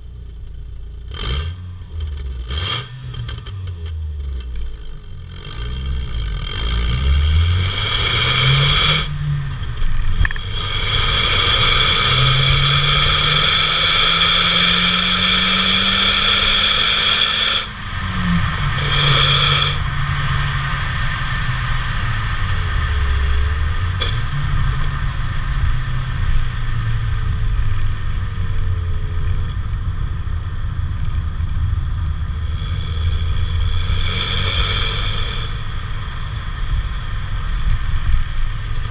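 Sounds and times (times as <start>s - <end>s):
car exhaust accelerating: 0.0s - 38.9s
road and wind hiss: 0.0s - 38.9s.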